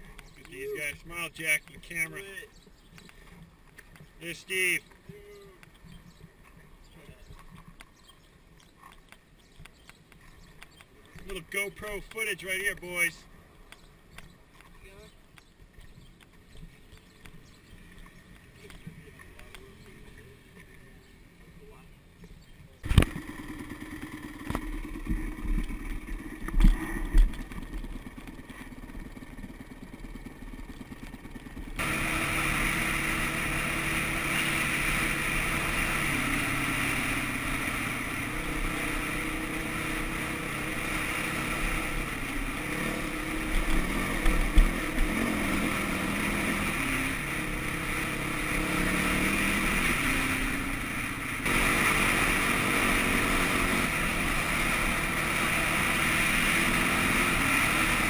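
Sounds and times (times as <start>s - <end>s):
dirt bike engine revving: 22.9s - 58.0s.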